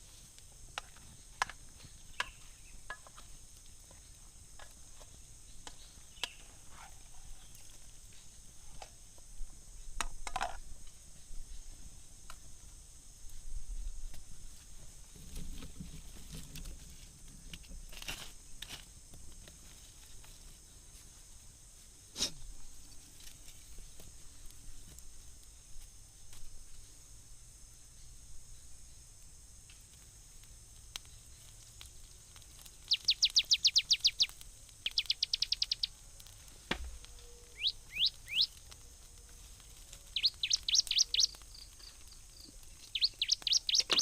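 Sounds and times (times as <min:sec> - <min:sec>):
high-pitched insect chorus: 0:18.0 - 0:44.0.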